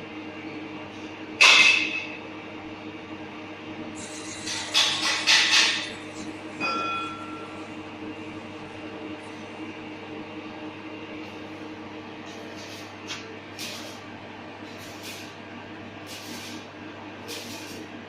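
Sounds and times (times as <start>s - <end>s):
machine hum: 2.2s - 18.0s
bursts of hissing air: 16.0s - 17.9s.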